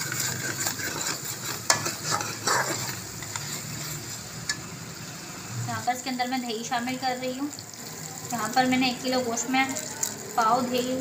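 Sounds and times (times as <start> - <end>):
spoon scraping metal pot: 0.0 - 4.7
sauce sizzling in oil: 0.0 - 11.0.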